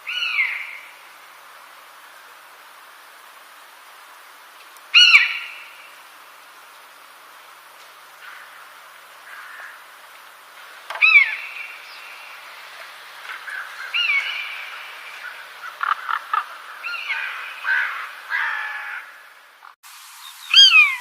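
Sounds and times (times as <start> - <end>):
birds calling: 0.0 - 1.0, 4.8 - 6.1, 8.1 - 21.0
faint steady hiss: 0.0 - 21.0.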